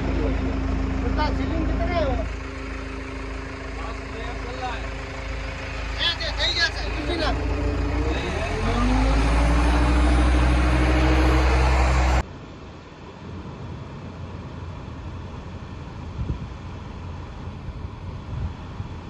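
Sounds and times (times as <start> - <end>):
diesel engine running loud: 0.0 - 12.2
engine whine: 0.0 - 12.3
outdoor noise: 0.0 - 19.0.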